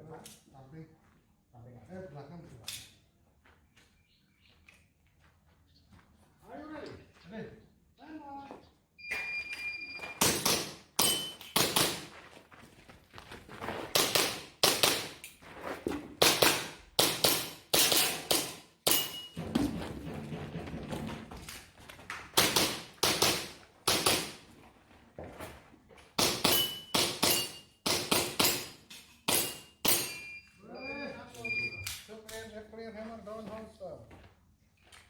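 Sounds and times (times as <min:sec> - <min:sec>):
pellets ringing on steel targets: 0:10.2 - 0:12.0, 0:16.3 - 0:19.6, 0:26.2 - 0:30.4.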